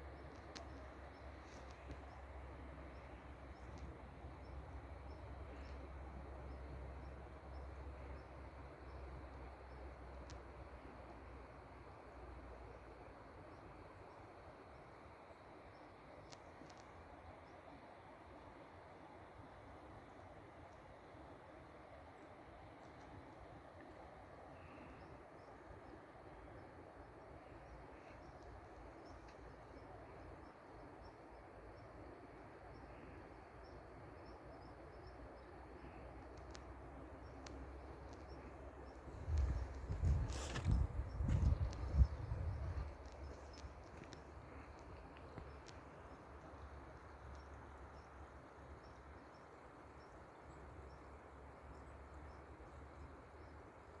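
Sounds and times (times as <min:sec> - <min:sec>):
steady soft hiss: 0:00.0 - 0:54.0
small birds chirping: 0:33.6 - 0:46.8.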